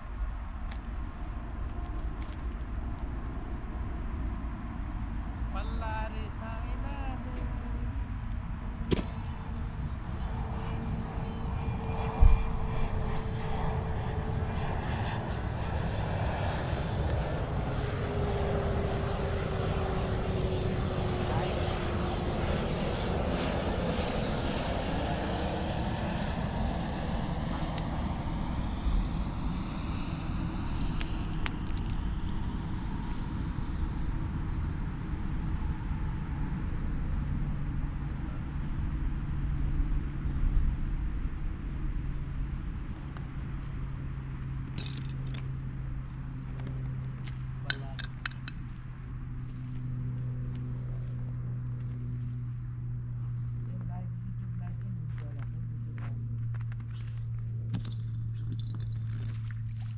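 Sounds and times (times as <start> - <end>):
low rumble: 0.0 - 17.9
low mechanical hum: 0.0 - 59.9
propeller aircraft engine droning: 0.0 - 59.9.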